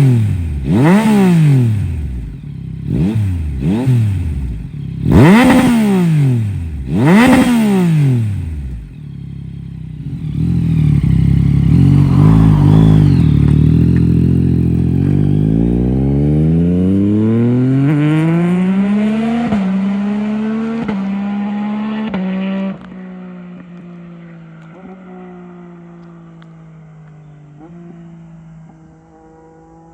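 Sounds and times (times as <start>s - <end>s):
motorcycle engine accelerating with upshifts: 0.0s - 29.9s
motorcycle engine passing fast: 0.0s - 29.9s.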